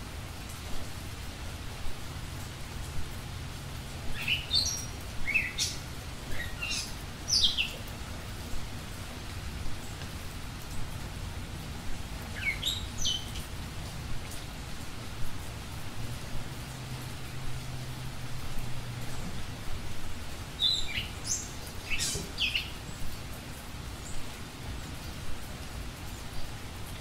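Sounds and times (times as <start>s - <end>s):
steady hiss: 0.0s - 27.0s.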